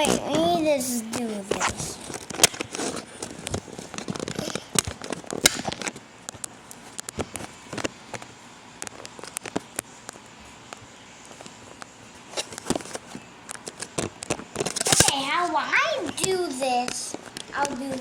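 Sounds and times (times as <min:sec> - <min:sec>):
clicks of objects being handled: 0:01.5 - 0:15.2.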